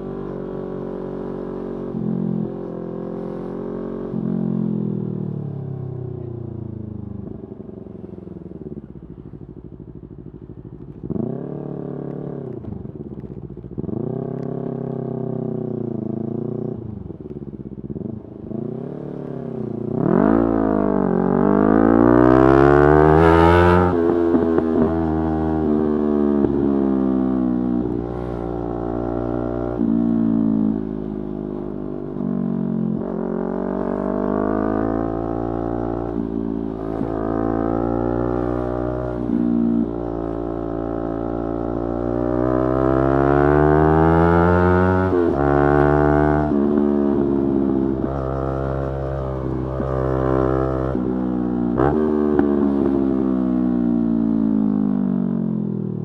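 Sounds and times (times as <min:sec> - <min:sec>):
motorcycle engine revving: 0:00.0 - 0:55.8.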